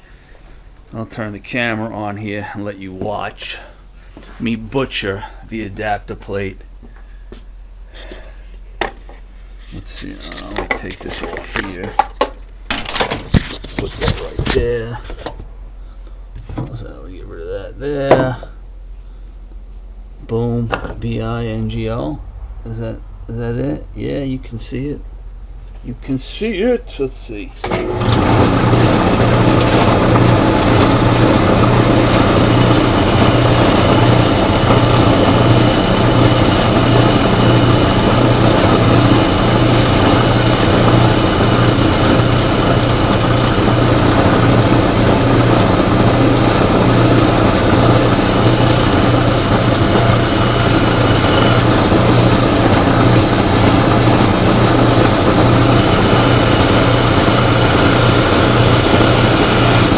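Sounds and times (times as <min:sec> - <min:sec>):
power tool cutting metal: 0:27.7 - 0:59.9.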